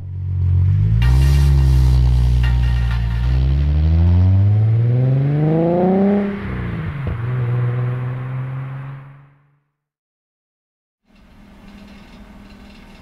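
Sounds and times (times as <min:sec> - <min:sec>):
car engine accelerating: 0:00.0 - 0:09.6.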